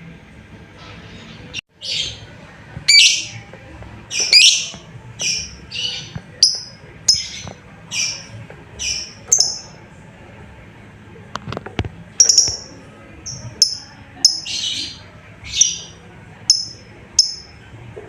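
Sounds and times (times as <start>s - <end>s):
lovebird harsh shrill calls: 2.9s - 3.3s, 4.1s - 7.4s, 8.0s - 9.7s.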